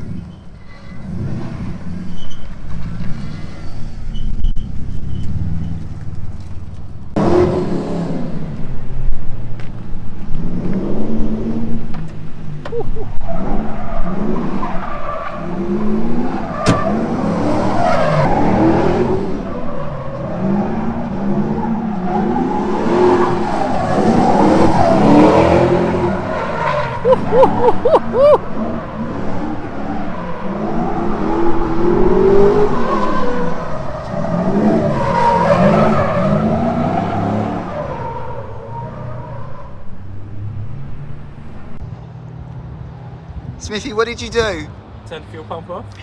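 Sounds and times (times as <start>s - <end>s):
car engine revving: 0.0s - 41.8s
tyres skidding: 0.0s - 42.4s.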